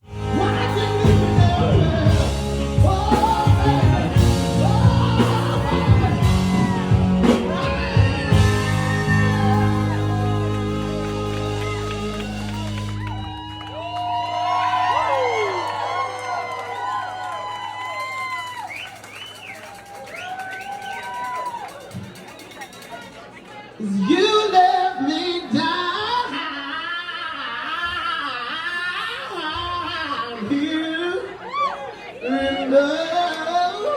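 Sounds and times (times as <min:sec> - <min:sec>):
live rock music: 0:00.0 - 0:14.0
lead singer singing: 0:00.1 - 0:13.2, 0:23.8 - 0:31.5, 0:32.2 - 0:33.9.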